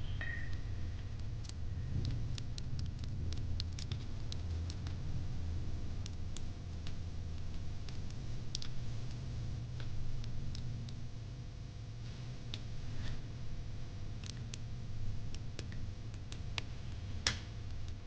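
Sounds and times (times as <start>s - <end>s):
low rumble of flames: 0.0s - 18.0s
wood fire crackling: 0.0s - 18.0s.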